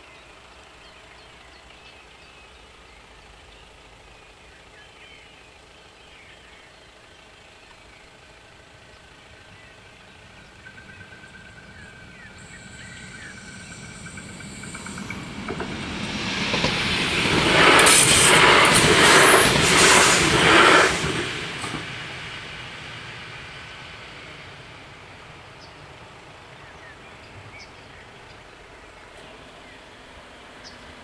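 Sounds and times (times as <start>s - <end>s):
train passing wheel and rail noise: 6.8s - 31.0s.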